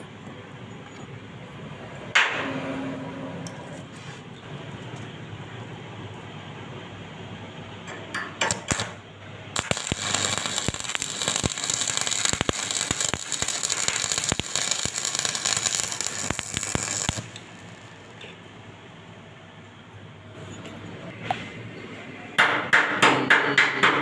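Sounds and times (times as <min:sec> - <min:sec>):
welding arc crackling: 0:08.5 - 0:09.0, 0:09.6 - 0:18.4
welding rod scratching strikes: 0:09.6 - 0:18.4.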